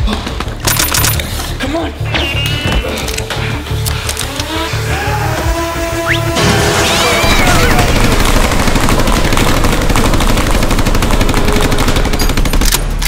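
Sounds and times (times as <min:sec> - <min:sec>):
rapid automatic gunfire: 0:06.6 - 0:13.0.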